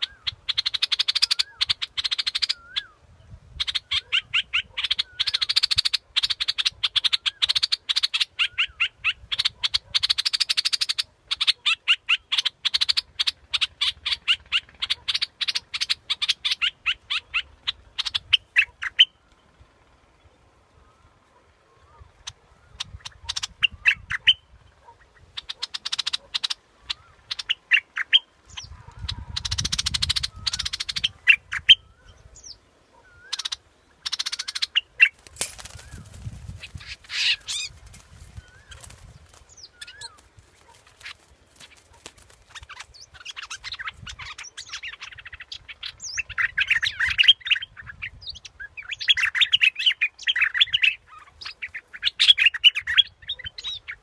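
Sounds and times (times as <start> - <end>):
bulbul chattering song: 33.3 - 47.2.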